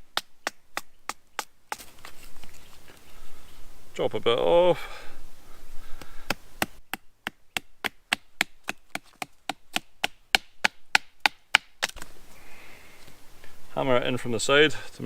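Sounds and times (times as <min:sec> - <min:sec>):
blade chopping wood: 0:06.0 - 0:12.1.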